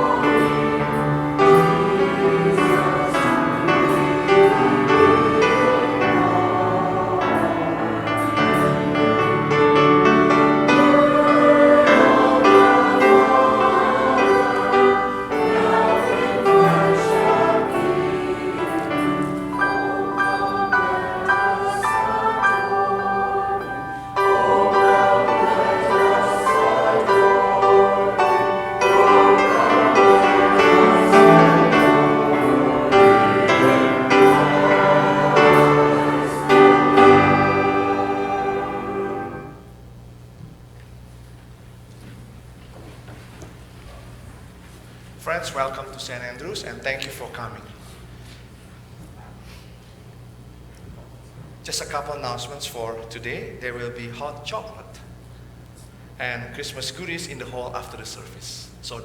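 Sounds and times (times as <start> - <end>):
choir singing: 0.0 - 39.8
instrumental accompaniment: 0.0 - 39.8.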